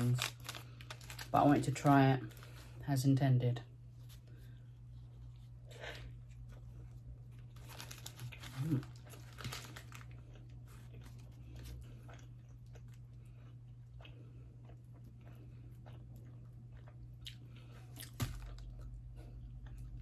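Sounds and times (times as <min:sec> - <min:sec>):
crunchy rustling: 0:00.0 - 0:02.9, 0:04.0 - 0:12.0
steady low hum: 0:00.0 - 0:20.0
chewing food close up: 0:07.5 - 0:20.0.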